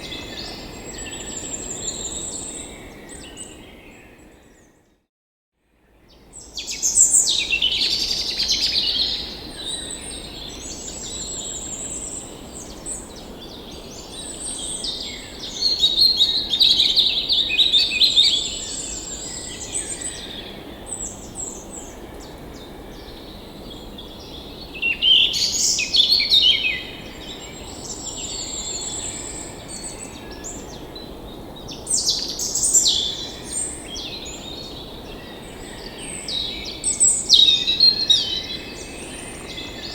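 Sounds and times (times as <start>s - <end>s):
songbirds singing and chirping: 6.1s - 39.9s.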